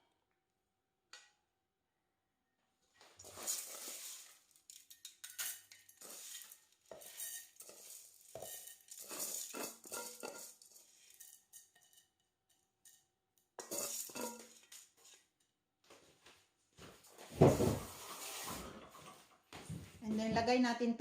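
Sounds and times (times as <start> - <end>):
utensil scraping and clinking dish: 3.2 - 13.0, 13.6 - 15.2.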